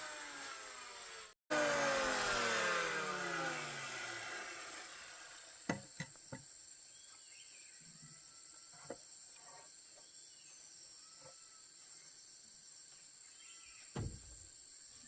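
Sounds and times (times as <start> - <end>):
high insect hiss: 4.9 - 15.0
sharp knocks: 13.9 - 14.4.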